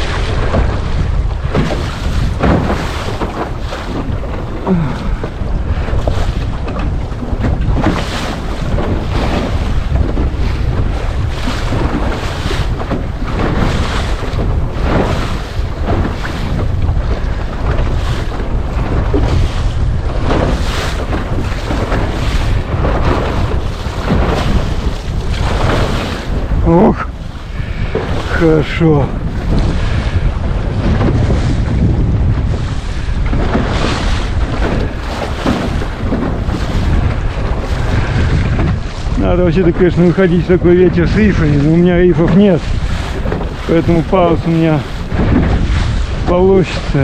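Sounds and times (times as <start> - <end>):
waves splashing against hull: 0.0 - 47.0
wind buffeting microphone: 0.0 - 47.0.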